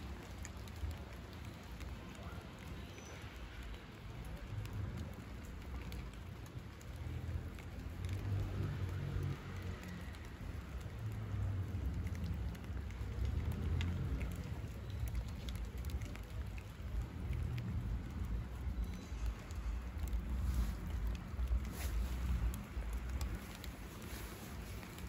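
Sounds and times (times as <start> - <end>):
light rain pattering: 0.0 - 25.0
steady low rumble: 15.5 - 25.0.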